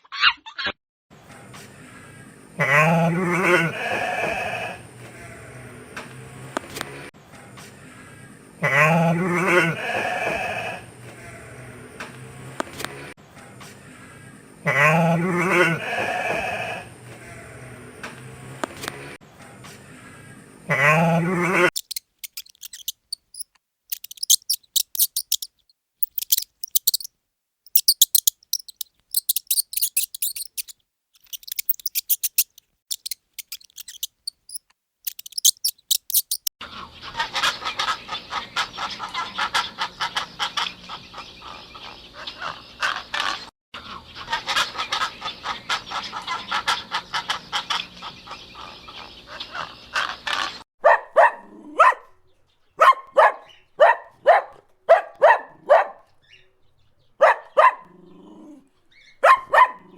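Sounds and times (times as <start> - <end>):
high-pitched bird trills: 21.8 - 27.1, 27.7 - 36.5.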